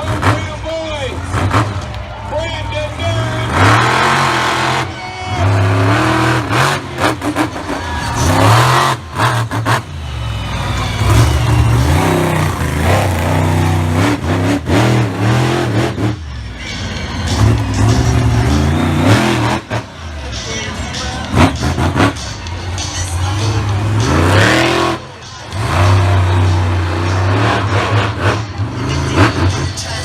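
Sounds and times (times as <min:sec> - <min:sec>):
truck engine revving: 0:00.0 - 0:30.0.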